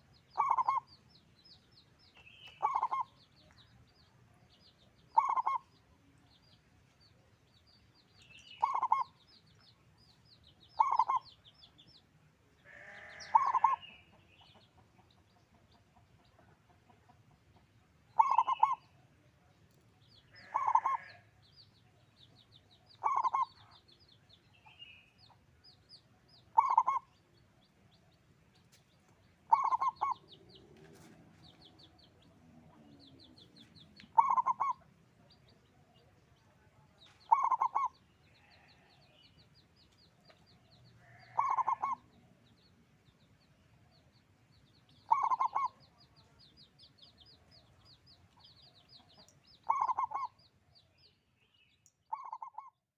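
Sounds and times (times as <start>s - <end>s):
dove cooing: 0.4s - 0.9s, 2.6s - 3.1s, 5.2s - 5.6s, 8.6s - 9.1s, 10.8s - 11.2s, 13.1s - 13.8s, 18.2s - 18.9s, 20.5s - 21.1s, 23.0s - 23.6s, 26.6s - 27.1s, 29.5s - 31.2s, 34.1s - 34.8s, 37.3s - 38.0s, 41.1s - 42.0s, 45.1s - 45.8s, 49.7s - 50.3s, 52.1s - 52.7s.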